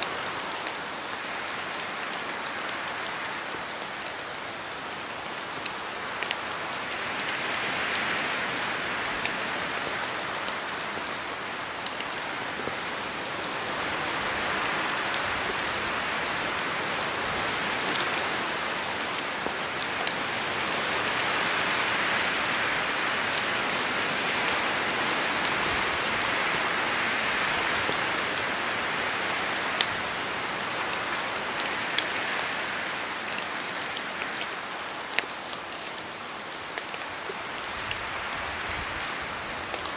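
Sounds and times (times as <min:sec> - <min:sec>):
rain hiss: 0:00.0 - 0:39.9
wind: 0:00.0 - 0:39.9.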